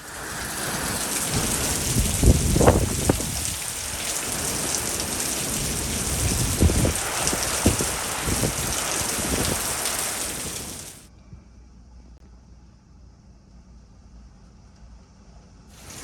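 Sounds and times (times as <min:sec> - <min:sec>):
wind gust bumps: 0:00.0 - 0:11.0, 0:15.8 - 0:16.0
heavy rain pouring: 0:00.0 - 0:11.1, 0:15.8 - 0:16.0.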